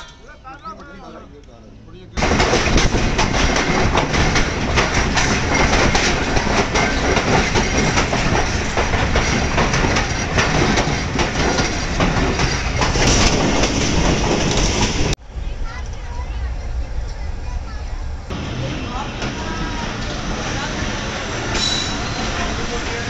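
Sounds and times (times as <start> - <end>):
train wheels rumbling on track: 2.1 - 23.0
wheels clacking over rail joints: 2.2 - 15.2, 18.3 - 23.0.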